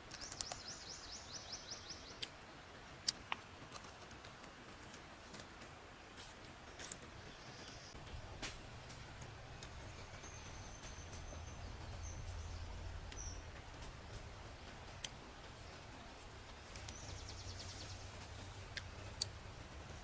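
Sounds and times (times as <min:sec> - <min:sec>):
low forest rumble: 0:07.2 - 0:20.0.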